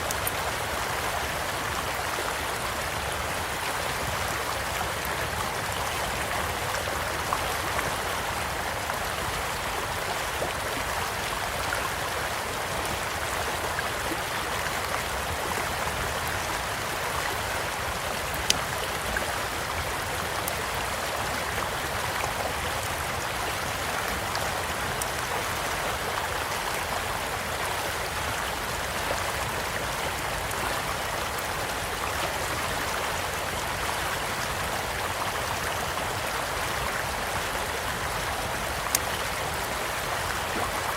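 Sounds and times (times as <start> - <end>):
campfire pops and crackles: 0.0 - 0.4
stream flowing over stones: 0.0 - 40.9.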